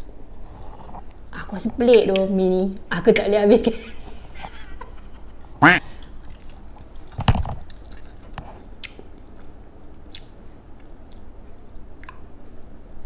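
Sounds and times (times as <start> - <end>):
wet mouth clicks: 10.1 - 10.3.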